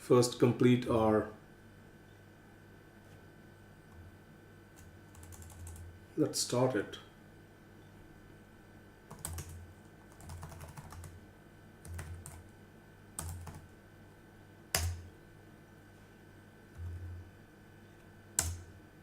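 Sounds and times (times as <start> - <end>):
computer keyboard typing: 4.8 - 5.9, 9.1 - 11.2, 11.8 - 12.5, 13.2 - 13.7, 14.7 - 15.1, 18.4 - 18.7.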